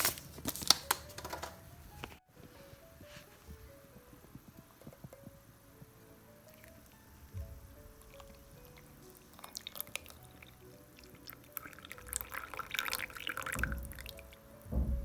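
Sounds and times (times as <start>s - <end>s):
soft background music: 0.0s - 15.0s
liquid pouring: 6.5s - 14.8s
low thumps: 7.1s - 9.2s, 13.5s - 15.0s.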